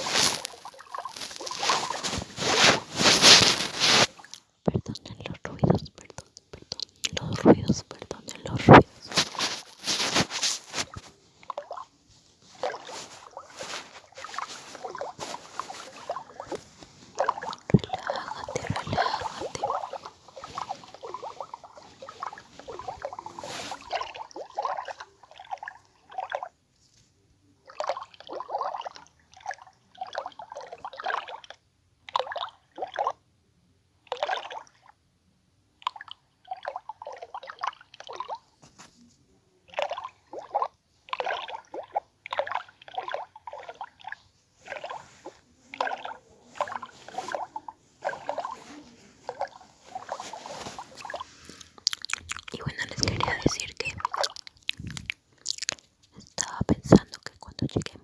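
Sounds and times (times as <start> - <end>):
wet mouth sounds: 0.0 - 11.9, 12.6 - 26.4, 39.8 - 58.0
person whispering: 4.7 - 10.9, 14.8 - 21.5, 22.4 - 24.1, 46.1 - 54.4, 55.4 - 58.0.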